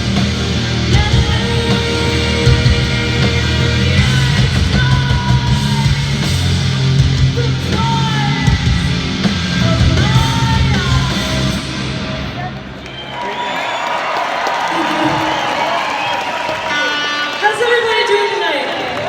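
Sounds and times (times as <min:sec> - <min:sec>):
distorted guitar: 0:00.0 - 0:12.8, 0:16.6 - 0:18.1
punk rock band playing: 0:00.0 - 0:12.8.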